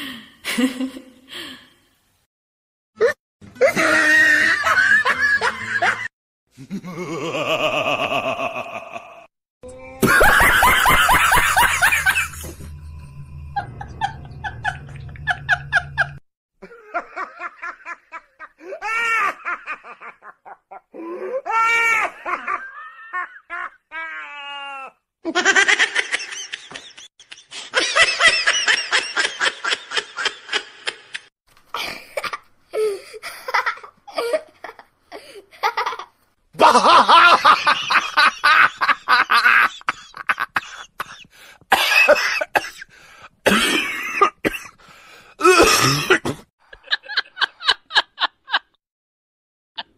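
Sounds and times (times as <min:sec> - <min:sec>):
people laughing: 0:03.6 - 0:09.3, 0:10.0 - 0:12.7, 0:13.6 - 0:20.8, 0:25.3 - 0:31.2, 0:36.6 - 0:41.2.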